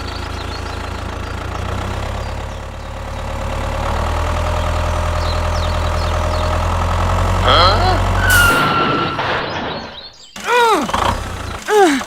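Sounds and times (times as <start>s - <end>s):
engine idling: 0.0s - 8.3s.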